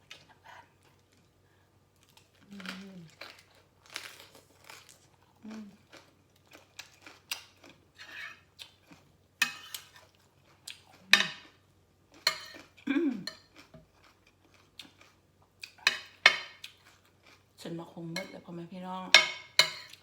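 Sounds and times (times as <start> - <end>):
utensils clinking on a plate: 12.3 - 13.8, 19.1 - 20.0.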